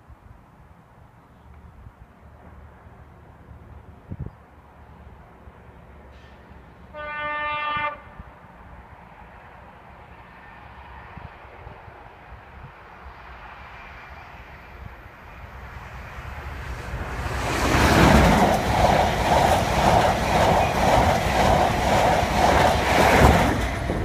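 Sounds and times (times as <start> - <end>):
passenger train passing: 0.4 - 24.0
train wheels clattering: 17.0 - 24.0.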